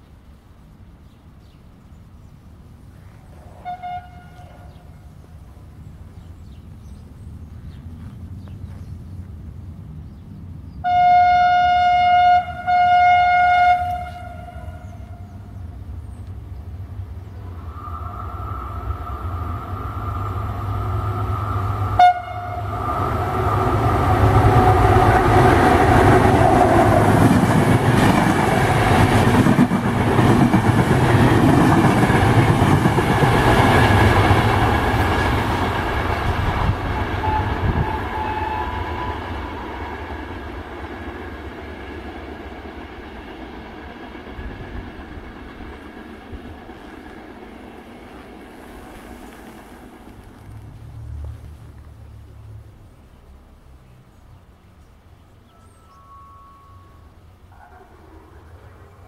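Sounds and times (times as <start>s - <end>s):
train rushing past: 3.2s - 59.0s
train horn two-tone note: 3.6s - 4.8s, 10.8s - 15.3s, 21.8s - 23.0s, 37.1s - 39.2s, 55.5s - 58.0s.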